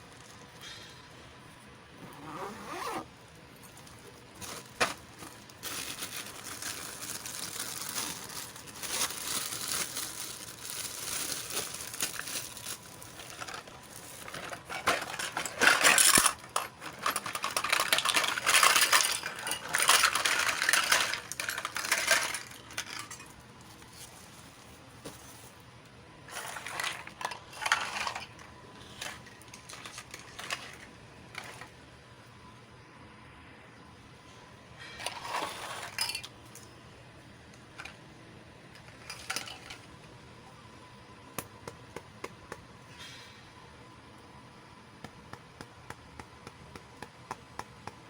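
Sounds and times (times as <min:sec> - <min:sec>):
plastic packaging crinkling: 0:02.4 - 0:25.7, 0:26.3 - 0:31.7.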